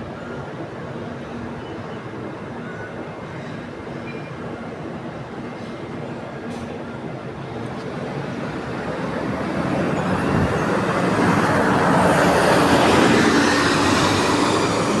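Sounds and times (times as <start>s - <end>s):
road noise: 7.1s - 15.0s
bus diesel engine accelerating: 7.4s - 15.0s.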